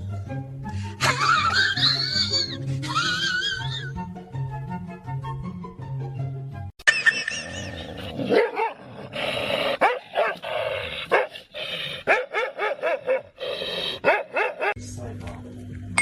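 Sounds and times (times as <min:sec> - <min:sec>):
dog barking and yipping: 0:06.9 - 0:11.4, 0:12.0 - 0:14.8.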